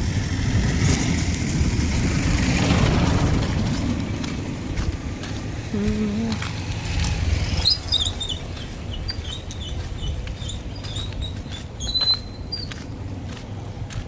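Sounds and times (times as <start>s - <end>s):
steady low rumble: 0.0s - 14.0s
small birds chirping: 7.5s - 13.1s.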